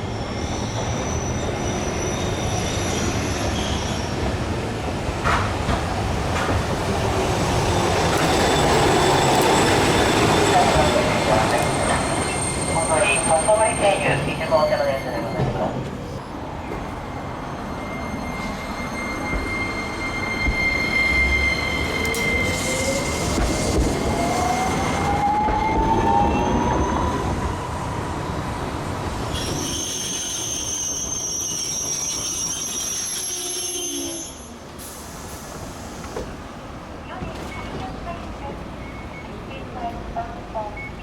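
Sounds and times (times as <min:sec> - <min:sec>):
wheel squeal: 0:29.4 - 0:34.5.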